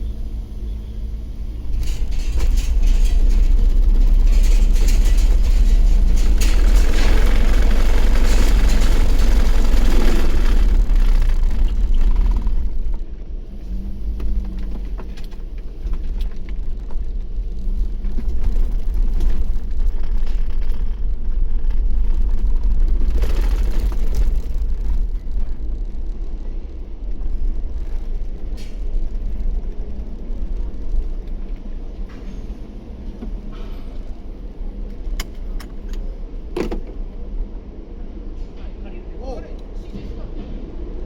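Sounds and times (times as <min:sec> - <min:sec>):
vehicle low rumble: 0:00.0 - 0:41.0.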